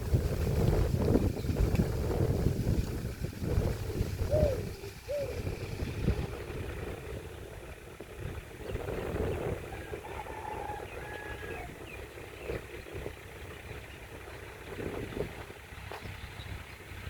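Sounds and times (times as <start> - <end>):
tractor engine rumbling: 0.0 - 17.0
short rising-and-falling calls: 4.2 - 6.2.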